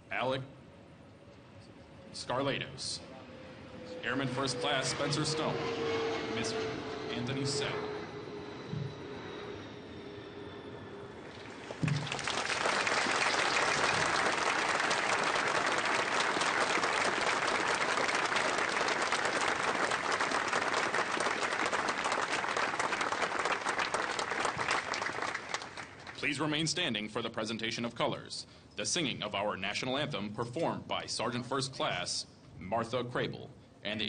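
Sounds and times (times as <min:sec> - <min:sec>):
audience clapping: 0:11.4 - 0:26.3.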